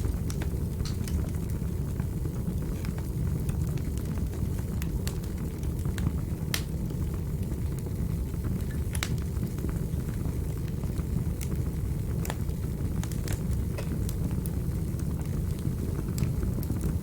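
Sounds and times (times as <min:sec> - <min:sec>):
fire crackles and pops: 0:00.0 - 0:17.0
wood fire roaring: 0:00.0 - 0:17.0.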